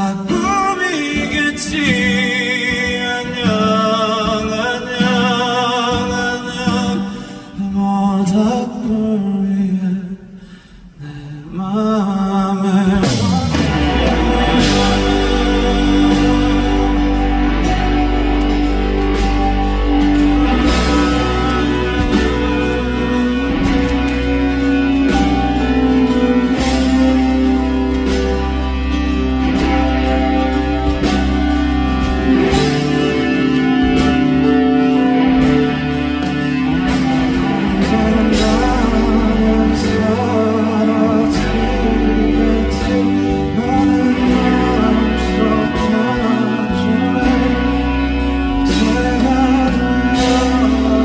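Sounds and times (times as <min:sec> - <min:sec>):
guitar chords: 0:00.0 - 0:07.8, 0:12.9 - 0:51.0
live band held notes: 0:00.0 - 0:08.9, 0:12.9 - 0:51.0
sustained low bass: 0:13.0 - 0:51.0.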